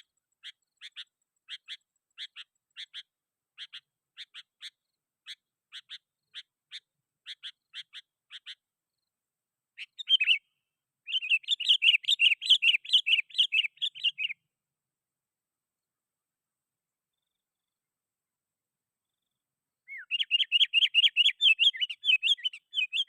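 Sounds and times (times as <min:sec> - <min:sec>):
bird chirping and chattering: 0:00.0 - 0:08.6, 0:09.8 - 0:10.5, 0:11.1 - 0:14.4, 0:19.9 - 0:23.0.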